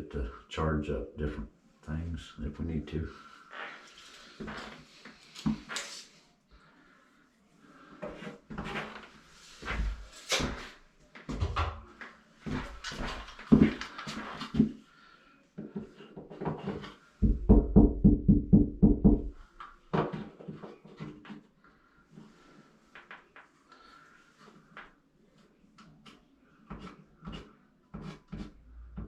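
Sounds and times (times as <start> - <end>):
hand tool knocking on drywall: 17.2 - 19.4.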